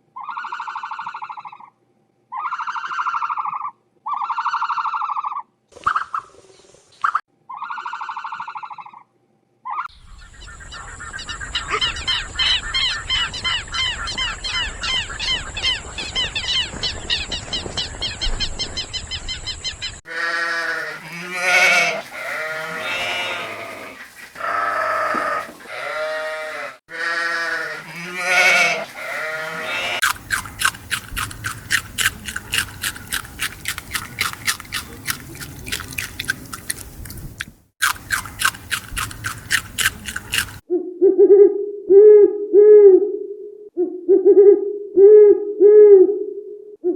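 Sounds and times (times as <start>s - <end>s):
animal bleat-like calls: 20.1s - 30.1s
animal chattering: 20.1s - 40.6s
rapid animal clicking: 30.0s - 40.6s.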